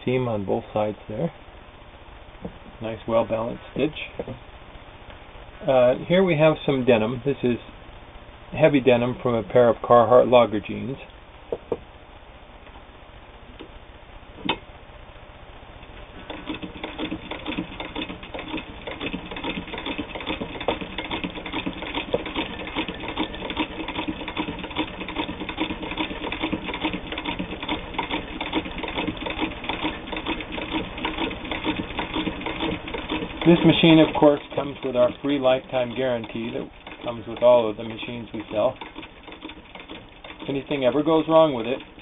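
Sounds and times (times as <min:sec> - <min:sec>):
sewing machine clicking: 0:16.2 - 0:42.0
sewing machine needle clatter: 0:16.3 - 0:42.0.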